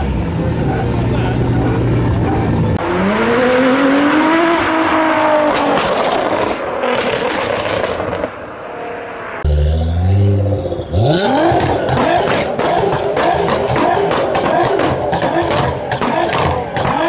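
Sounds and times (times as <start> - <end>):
car engine revving: 0.0 - 17.0
exhaust pops and crackles: 5.5 - 8.2.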